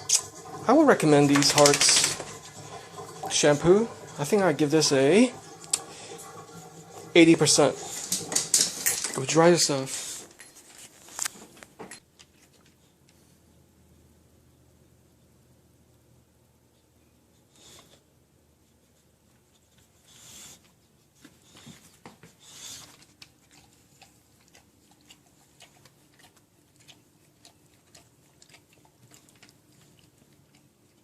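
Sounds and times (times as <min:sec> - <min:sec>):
dog rustling: 0:00.0 - 0:04.2.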